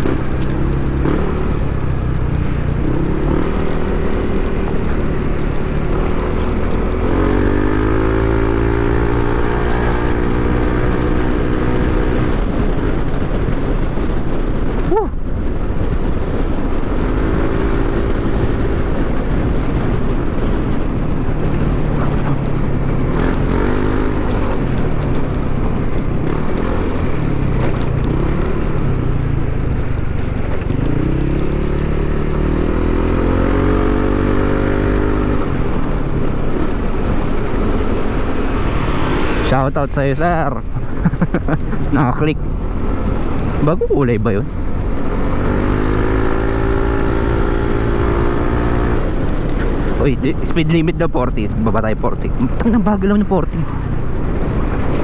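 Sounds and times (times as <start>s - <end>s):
scooter engine running: 0.0s - 39.8s
wind and road noise: 0.0s - 55.0s.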